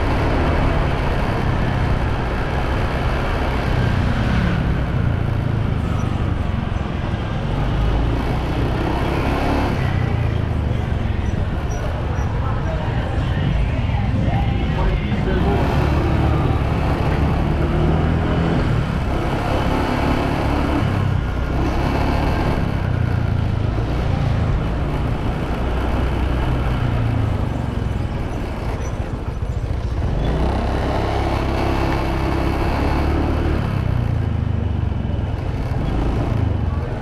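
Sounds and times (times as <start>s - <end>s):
motorbike engine running: 0.0s - 37.0s
wind and road noise: 0.0s - 37.0s.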